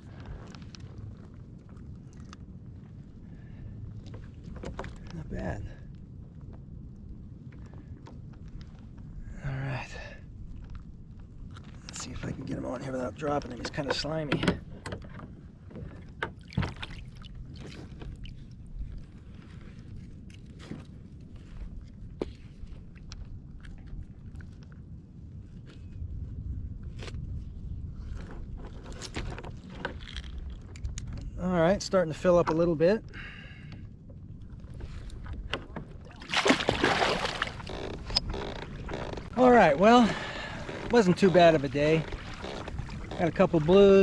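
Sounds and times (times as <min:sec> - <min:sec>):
water sloshing: 0:11.6 - 0:20.9, 0:34.5 - 0:44.0
knocks and clicks of fish handling: 0:13.7 - 0:17.0
low steady rumble: 0:29.4 - 0:44.0
water splash: 0:36.1 - 0:38.0.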